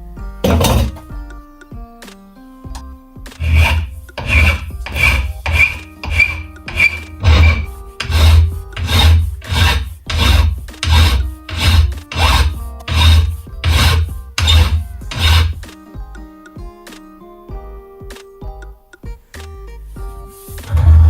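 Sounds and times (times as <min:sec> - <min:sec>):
rasping abrading strokes on knife: 0:00.4 - 0:01.0, 0:03.4 - 0:15.7.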